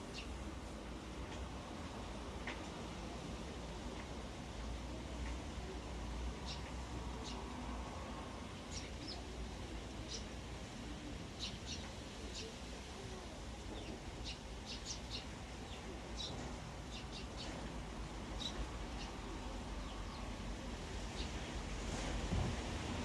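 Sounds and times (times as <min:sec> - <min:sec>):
sparrows chirping: 0:00.1 - 0:00.4, 0:06.4 - 0:07.5, 0:08.6 - 0:09.3, 0:10.0 - 0:10.4, 0:11.3 - 0:12.6, 0:13.6 - 0:17.7, 0:18.3 - 0:20.4, 0:21.0 - 0:21.5
wind rumble on microphone: 0:21.2 - 0:23.0.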